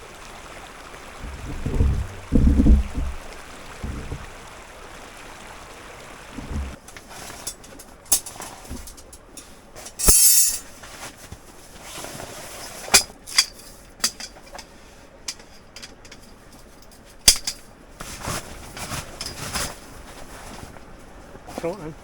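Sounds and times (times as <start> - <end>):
sharp clicks and knocks: 1.2 - 4.3
scraping hiss: 1.2 - 4.8, 6.2 - 11.1.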